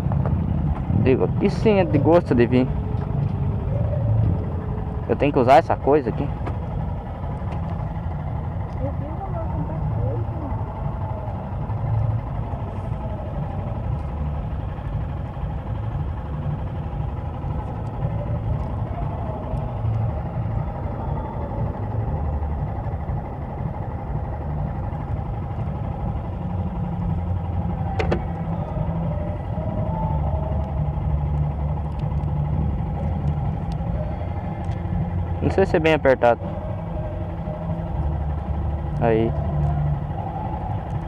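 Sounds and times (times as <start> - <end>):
motorcycle engine rumbling: 0.0 - 41.0.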